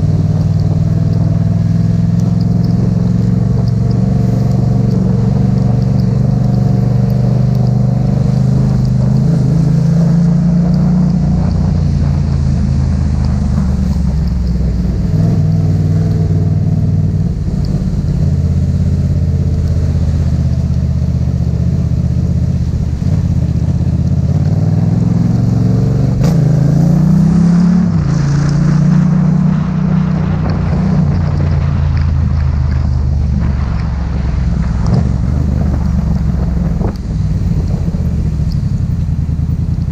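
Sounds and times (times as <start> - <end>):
motorcycle engine running: 0.0 - 26.4, 30.1 - 39.9.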